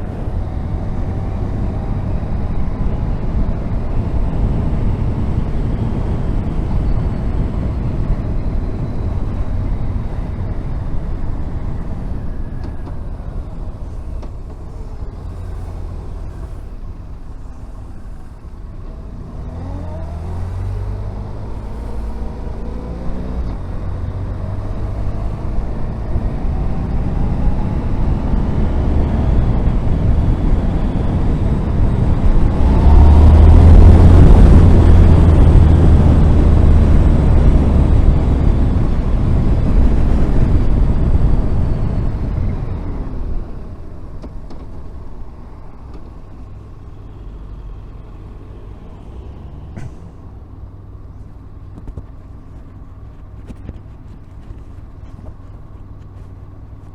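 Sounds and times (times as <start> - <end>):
wind rush: 20.8 - 44.1.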